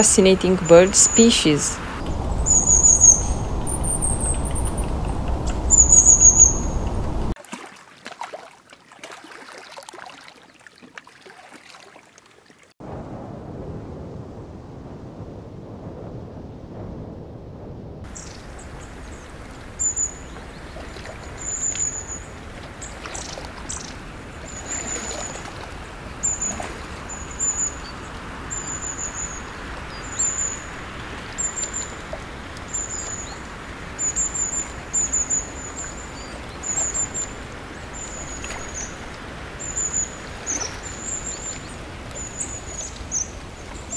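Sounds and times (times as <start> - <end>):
running water hiss: 0.0 - 7.4, 18.1 - 43.9
small bird chirping: 2.2 - 7.3.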